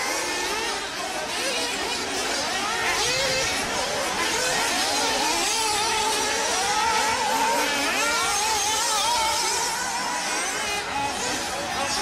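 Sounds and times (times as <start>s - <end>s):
radio-controlled car motors revving: 0.0s - 12.0s.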